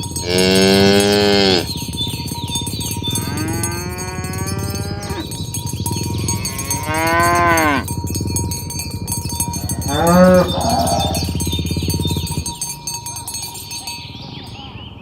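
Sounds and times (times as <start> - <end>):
cattle mooing: 0.0 - 5.4, 6.0 - 7.9, 9.1 - 12.5.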